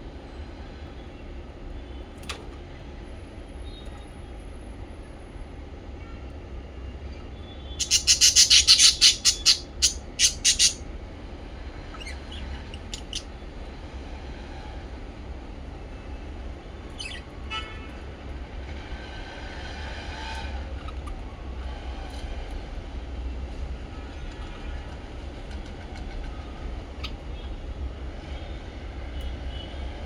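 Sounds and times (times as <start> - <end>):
parrots chirping: 7.7 - 10.8, 11.9 - 13.3, 16.9 - 17.3, 25.6 - 27.2.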